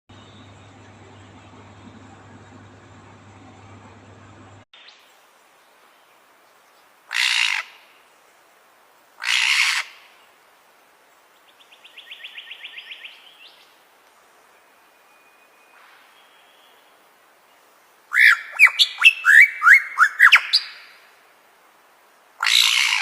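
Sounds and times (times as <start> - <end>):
bird squawking and trilling: 9.2 - 9.9, 18.1 - 20.8, 22.4 - 23.0.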